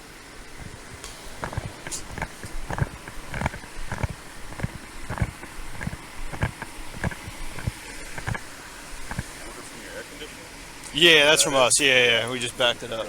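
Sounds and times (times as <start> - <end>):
footsteps on roadway: 0.4 - 9.4.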